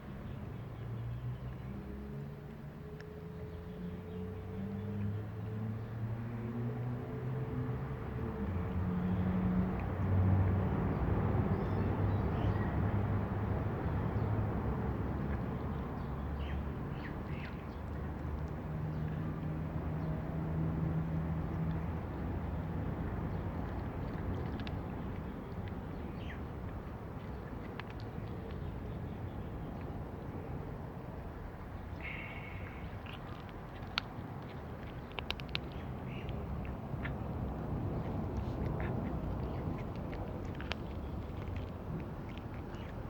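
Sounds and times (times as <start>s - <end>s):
low engine-like hum: 0.0s - 43.0s.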